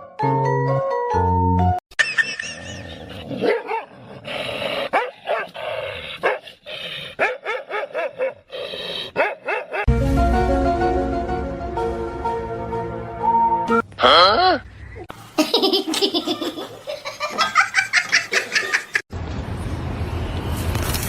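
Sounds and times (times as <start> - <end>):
dog barking and yipping: 3.4 - 3.9, 4.9 - 5.6, 6.2 - 6.4, 7.2 - 8.5, 9.1 - 9.9.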